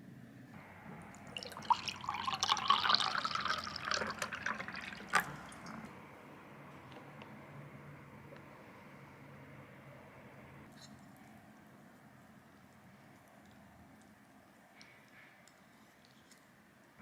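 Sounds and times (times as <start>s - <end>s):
water running and splashing: 1.1s - 5.9s.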